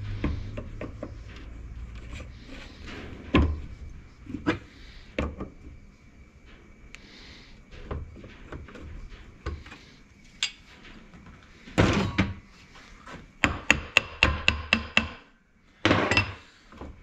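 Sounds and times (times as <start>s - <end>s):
hammer knocking on metal: 13.4s - 15.2s.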